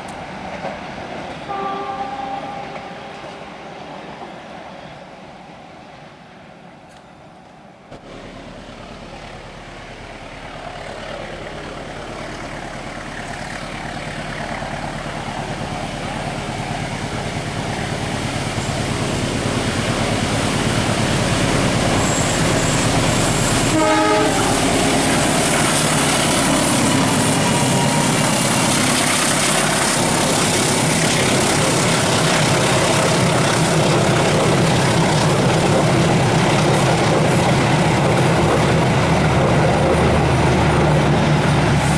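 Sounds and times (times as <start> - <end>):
train wheels rumbling on rails: 0.0 - 41.9
train horn blast: 1.5 - 3.5, 22.0 - 25.5.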